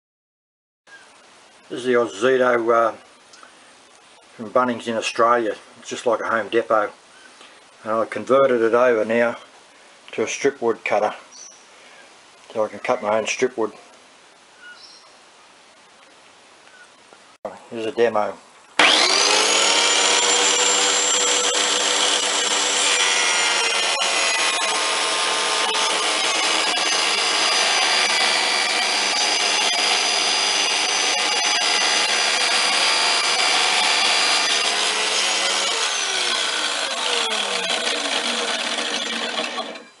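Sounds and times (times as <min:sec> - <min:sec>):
saw blade spinning down: 0:18.8 - 0:39.9
table saw whine: 0:18.8 - 0:40.0.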